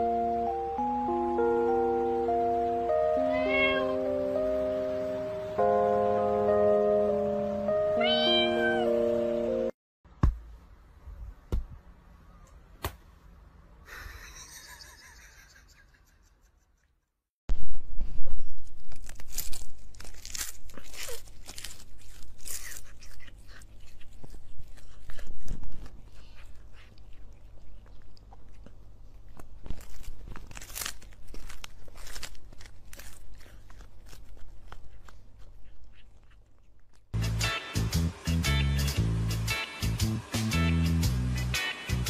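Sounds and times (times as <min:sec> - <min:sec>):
cat crunching chewing stick: 0:18.8 - 0:37.1.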